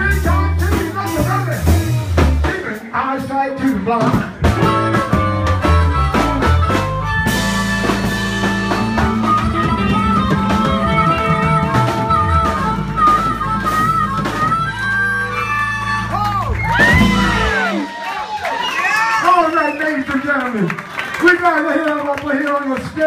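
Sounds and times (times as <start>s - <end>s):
bass guitar: 0.0s - 19.3s
drum kit: 0.0s - 20.2s
live band playing: 0.0s - 23.0s
guitar lead line: 3.6s - 19.7s.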